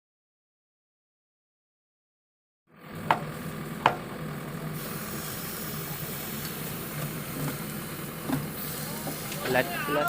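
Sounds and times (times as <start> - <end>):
diesel engine running: 2.7 - 10.0
sharp knocks: 3.0 - 4.0.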